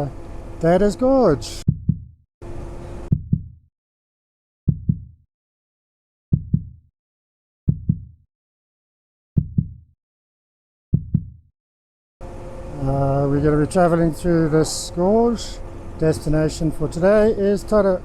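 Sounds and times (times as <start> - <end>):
heartbeat double thump: 1.7 - 2.2, 3.1 - 3.6, 4.7 - 5.2, 6.3 - 6.8, 7.7 - 8.2, 9.4 - 9.8, 10.9 - 11.4.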